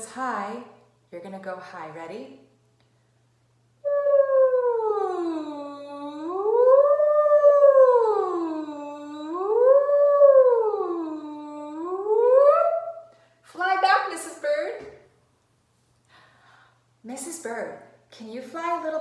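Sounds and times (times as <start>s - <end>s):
woman's vocal siren: 3.8s - 13.0s.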